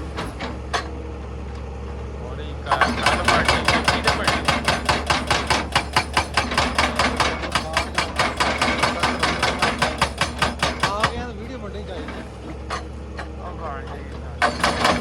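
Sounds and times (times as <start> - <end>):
excavator engine hum: 0.0 - 15.0
hydraulic breaker hammering stone: 2.7 - 11.4, 14.4 - 15.0.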